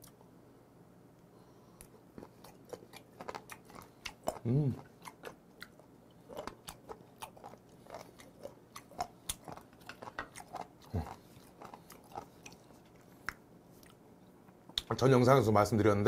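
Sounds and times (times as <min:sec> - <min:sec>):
wet crunchy chewing: 0:02.1 - 0:14.0
low throat sound: 0:04.3 - 0:04.9.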